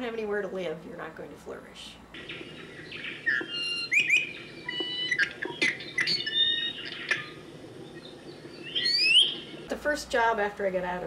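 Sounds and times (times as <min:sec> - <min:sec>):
birds chirping and singing: 0:02.2 - 0:09.7.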